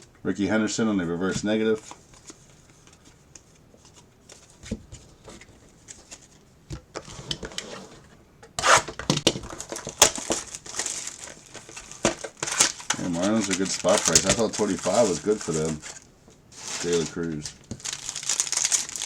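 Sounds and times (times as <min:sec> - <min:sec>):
plastic wrapper crinkling and tearing: 0:09.4 - 0:19.0.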